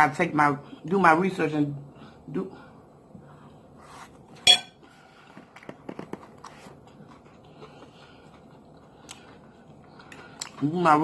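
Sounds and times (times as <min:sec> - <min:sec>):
eating sounds: 0:06.4 - 0:11.0.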